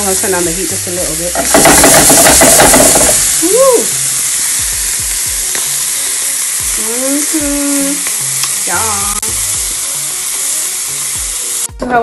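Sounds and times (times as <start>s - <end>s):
prawns sizzling in a pan: 0.0s - 12.0s.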